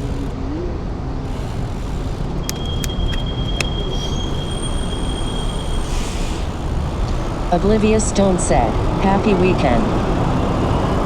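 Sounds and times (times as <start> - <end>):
sharp clicks: 2.4 - 3.8
wind and road noise: 5.6 - 11.0.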